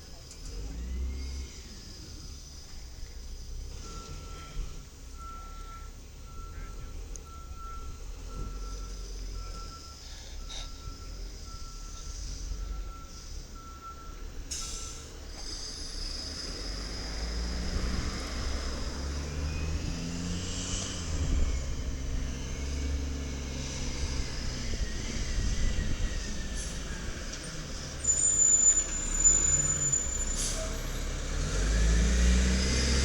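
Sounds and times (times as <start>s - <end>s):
truck reverse beeper: 3.7s - 33.0s
truck engine revving: 15.1s - 33.0s.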